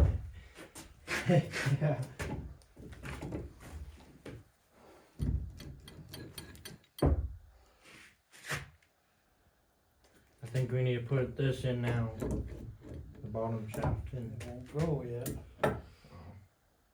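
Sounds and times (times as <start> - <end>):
heavy thumps: 0.0 - 0.5.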